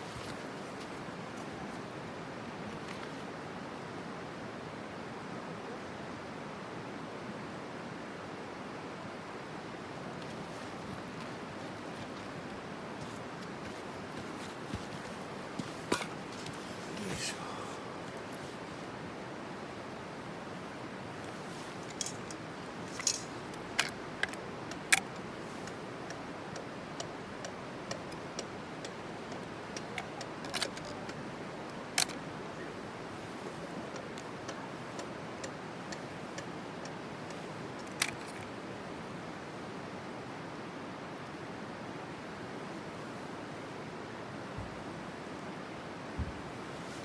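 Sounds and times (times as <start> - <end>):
wood fire crackling: 10.2 - 32.2.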